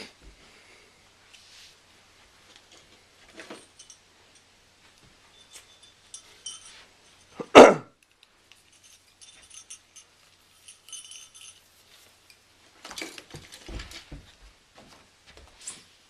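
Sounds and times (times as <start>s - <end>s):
ornaments clinking and jingling: 3.2s - 14.1s
rustling: 8.0s - 16.0s.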